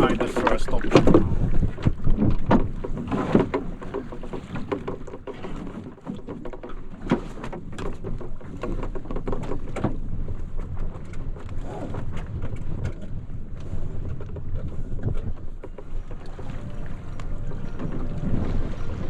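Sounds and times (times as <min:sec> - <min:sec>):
low wind rumble: 0:00.0 - 0:05.3, 0:12.0 - 0:19.0
canoe knocks and slaps: 0:00.1 - 0:11.6.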